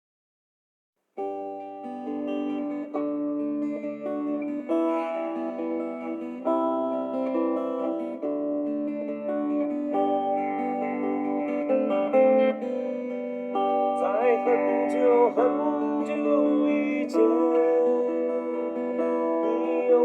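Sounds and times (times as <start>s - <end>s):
strummed acoustic guitar chords: 1.2s - 20.0s.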